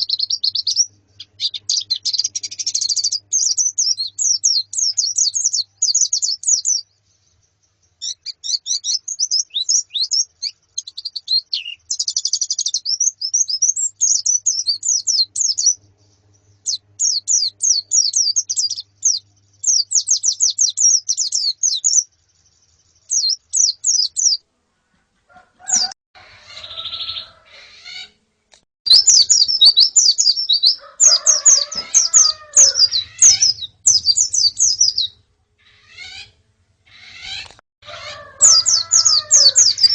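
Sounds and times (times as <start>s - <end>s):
lower wavering bird calls: 0.0s - 6.8s, 8.0s - 22.0s, 28.9s - 39.9s
birds twittering high-pitched: 0.0s - 24.4s, 25.4s - 28.2s, 28.9s - 39.9s.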